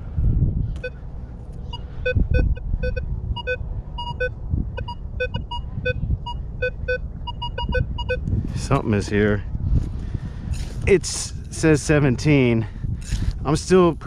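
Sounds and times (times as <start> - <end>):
low rumble: 0.0 - 8.6
metal detector beeps: 0.8 - 1.0, 1.7 - 8.2.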